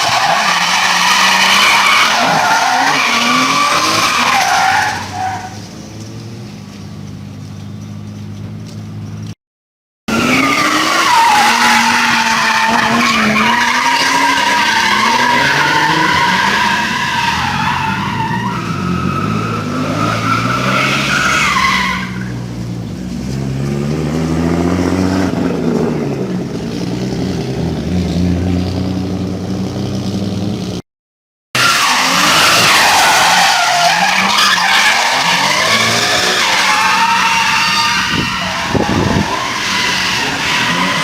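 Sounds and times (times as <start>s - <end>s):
tyres squealing: 0.0s - 5.6s, 10.1s - 22.4s, 31.6s - 41.0s
car engine revving: 23.0s - 30.8s.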